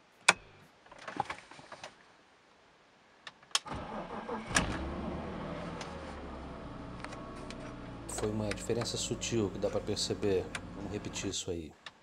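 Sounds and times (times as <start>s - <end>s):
car engine cranking and idling: 3.6s - 11.3s
ignition key clicks: 7.0s - 9.2s.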